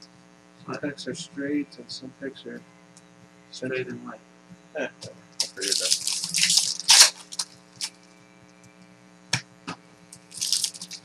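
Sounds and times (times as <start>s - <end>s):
faint hum: 0.0s - 11.0s
foil wrappers crinkling and tearing: 5.4s - 8.1s, 10.3s - 11.0s.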